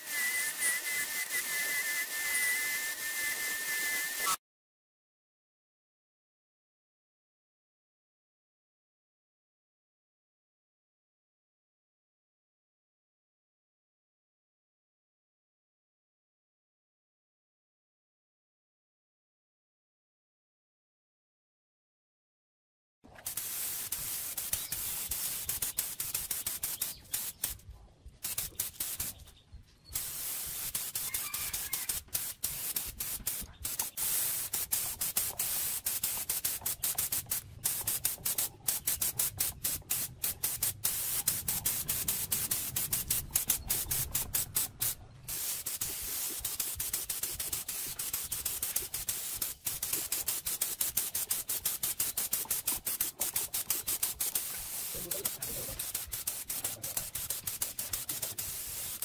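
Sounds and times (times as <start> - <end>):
spray paint hissing: 0.0 - 4.4, 23.1 - 29.3, 29.9 - 59.0.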